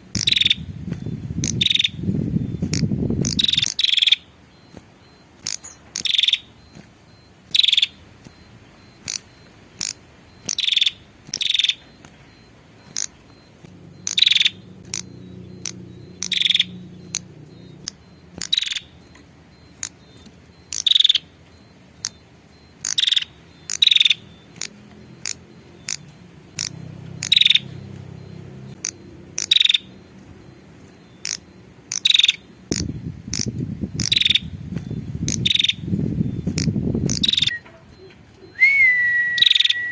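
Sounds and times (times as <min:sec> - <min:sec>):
small bird sharp calls: 0:00.0 - 0:39.9.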